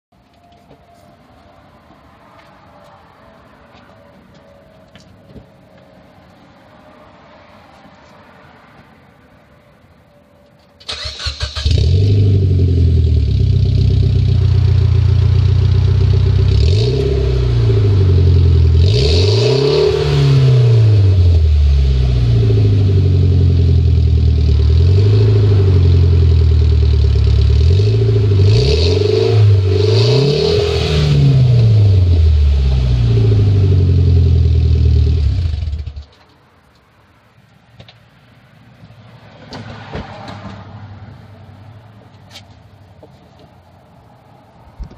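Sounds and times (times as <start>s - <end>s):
car engine idling and revving: 1.7s - 37.2s.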